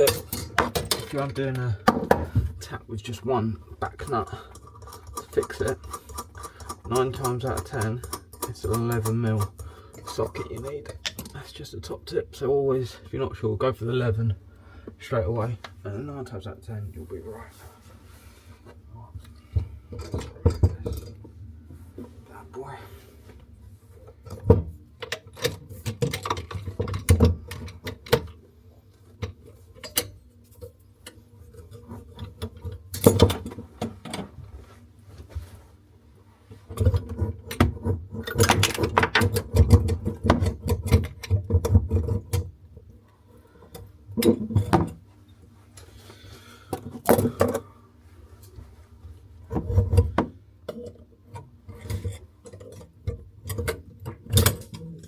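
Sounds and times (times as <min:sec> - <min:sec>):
hand tools clicking on metal: 0:04.0 - 0:11.4.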